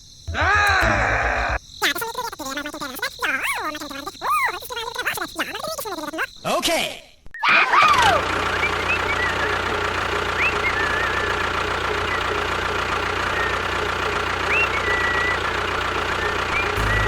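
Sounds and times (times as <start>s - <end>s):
motor humming: 7.8s - 17.0s.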